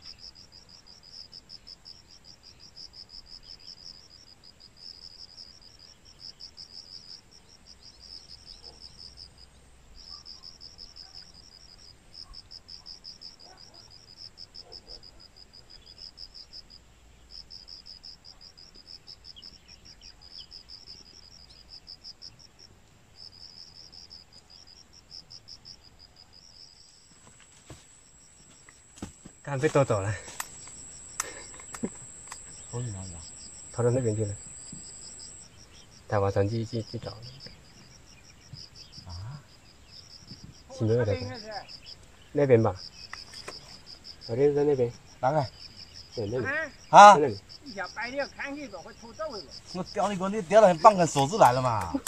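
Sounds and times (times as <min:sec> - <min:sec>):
insects chirping: 0:00.0 - 0:52.0.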